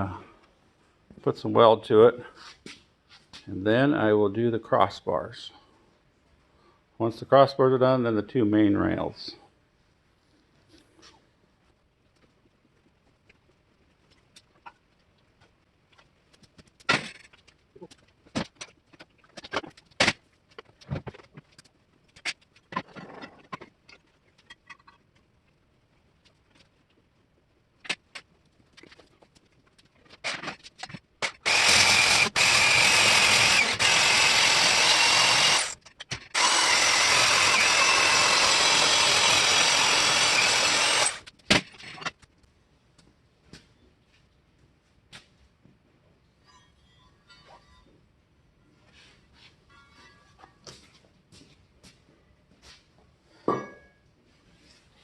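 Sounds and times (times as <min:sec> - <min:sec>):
loud power tool: 0:31.2 - 0:41.2.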